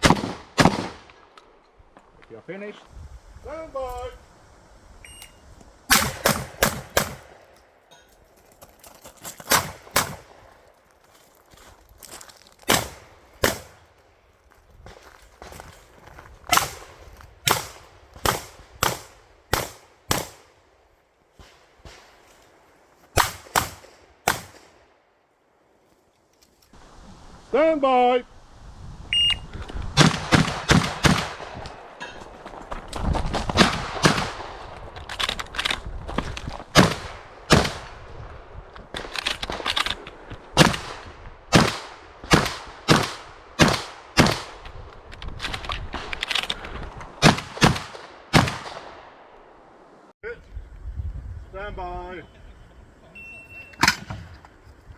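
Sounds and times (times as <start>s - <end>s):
shotgun shots: 0.0s - 1.2s, 5.9s - 7.5s, 9.5s - 10.4s, 12.7s - 13.8s, 16.5s - 20.6s, 23.2s - 24.8s, 30.0s - 31.8s, 36.7s - 37.9s, 40.6s - 44.6s, 47.2s - 49.1s
shot timer beep: 5.0s - 5.4s, 29.1s - 29.4s, 53.2s - 53.8s.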